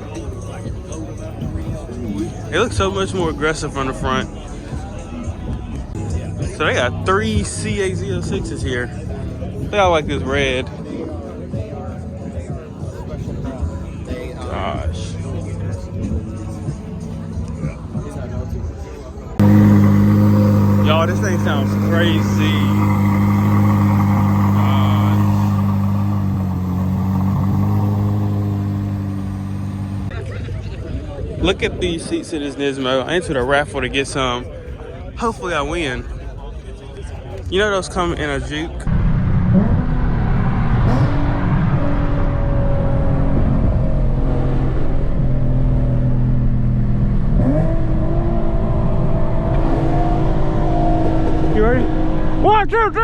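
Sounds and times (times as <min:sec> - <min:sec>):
car engine droning: 0:19.2 - 0:30.2, 0:38.8 - 0:53.0
car engine idling: 0:19.4 - 0:30.2.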